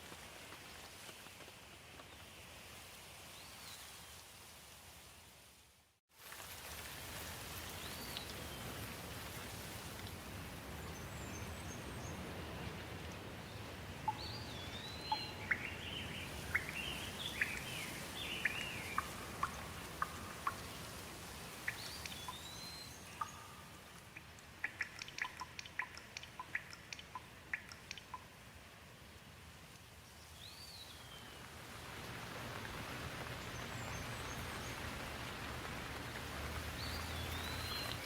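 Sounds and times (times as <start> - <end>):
steady rain: 0.0 - 38.0
sharp water drips: 14.0 - 28.5, 31.7 - 38.0.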